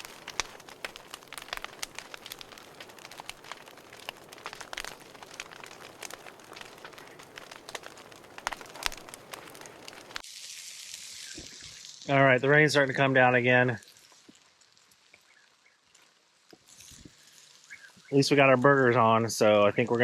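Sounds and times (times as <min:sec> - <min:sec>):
steady hiss: 0:00.0 - 0:15.4
campfire crackling and popping: 0:00.0 - 0:20.0.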